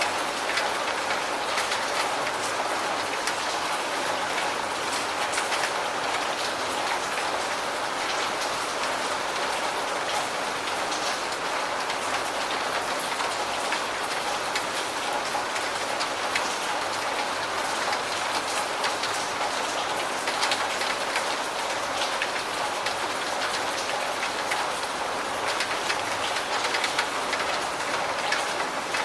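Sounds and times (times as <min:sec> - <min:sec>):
raindrops tapping: 0:10.9 - 0:29.0.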